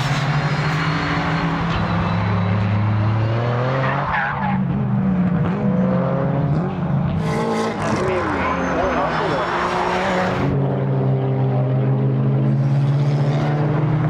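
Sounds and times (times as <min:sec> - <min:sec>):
tyre squeal: 0:00.0 - 0:04.6
race car engines running: 0:00.0 - 0:14.0.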